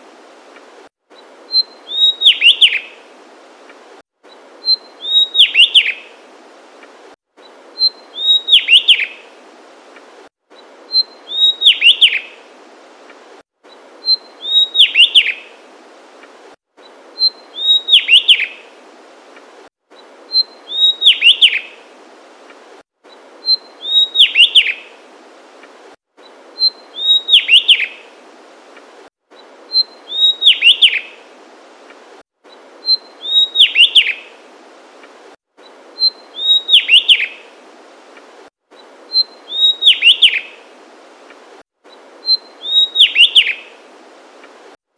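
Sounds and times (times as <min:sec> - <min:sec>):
background hiss: 0:00.0 - 0:44.9
bird singing: 0:01.5 - 0:03.0, 0:04.3 - 0:06.1, 0:07.4 - 0:09.2, 0:10.6 - 0:12.4, 0:14.0 - 0:15.5, 0:17.2 - 0:18.6, 0:20.3 - 0:21.8, 0:23.4 - 0:24.8, 0:26.6 - 0:28.0, 0:29.4 - 0:31.2, 0:32.5 - 0:34.3, 0:35.6 - 0:37.4, 0:38.8 - 0:40.6, 0:41.9 - 0:43.7.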